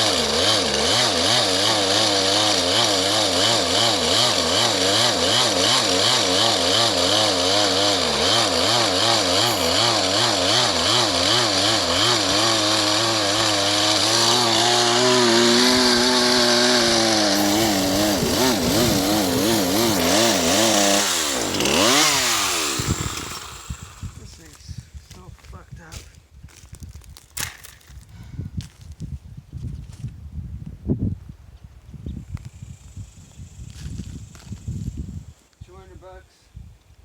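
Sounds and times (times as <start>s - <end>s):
chainsaw engine hunting: 0.0s - 25.3s.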